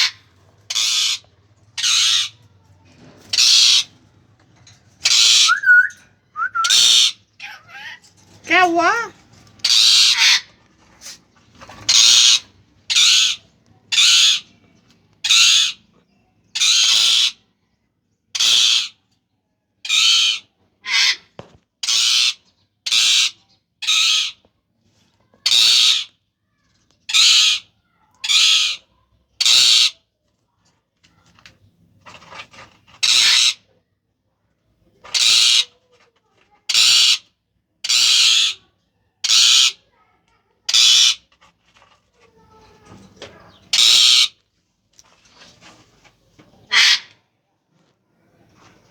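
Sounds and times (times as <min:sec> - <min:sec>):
parrot squawking: 0:00.0 - 0:01.2, 0:01.8 - 0:02.4, 0:03.4 - 0:03.9, 0:05.0 - 0:10.4, 0:33.0 - 0:33.6, 0:37.8 - 0:38.6, 0:39.2 - 0:39.8, 0:40.7 - 0:41.2, 0:43.7 - 0:44.3, 0:46.7 - 0:47.1.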